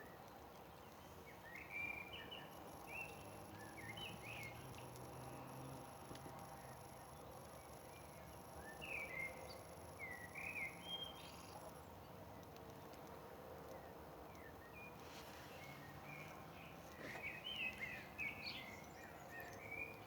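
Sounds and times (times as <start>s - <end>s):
bird chirping: 0.7s - 12.0s, 13.7s - 20.0s
faint high pulsing tone: 2.5s - 11.8s.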